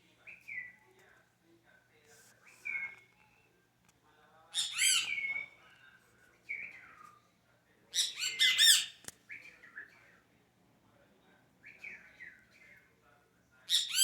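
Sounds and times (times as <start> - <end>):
bird calling harshly: 4.6 - 5.5, 8.0 - 9.0.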